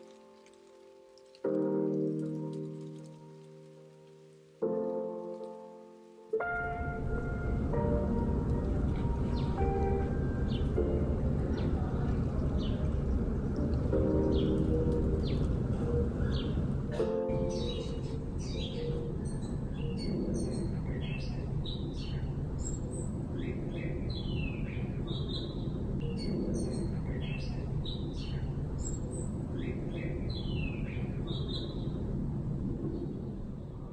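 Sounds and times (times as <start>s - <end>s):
songbirds chirping and singing: 6.4s - 32.1s
low background rumble: 6.5s - 33.9s.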